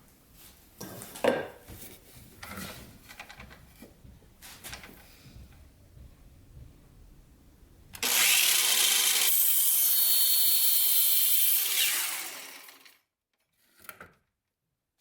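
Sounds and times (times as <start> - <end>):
power tool cutting wood: 8.0 - 13.0.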